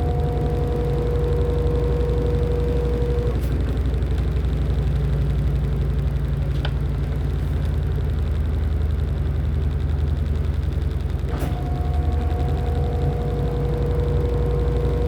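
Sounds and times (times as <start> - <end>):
high-pitched whine: 0.0 - 3.4, 11.4 - 15.0.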